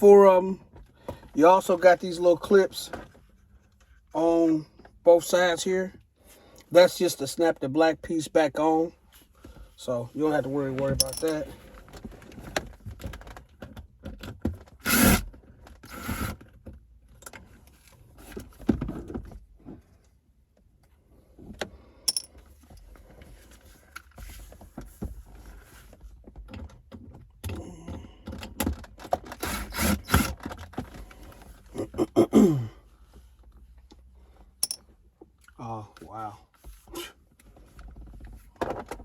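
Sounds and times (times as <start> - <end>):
cordless drill removing screws: 14.7 - 16.4, 29.1 - 30.6.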